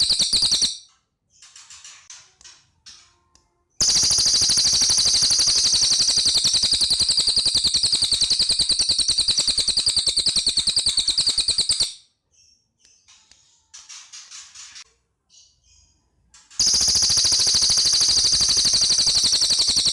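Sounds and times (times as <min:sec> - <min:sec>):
bird trilling: 0:00.0 - 0:00.8, 0:03.8 - 0:12.0, 0:16.6 - 0:19.9.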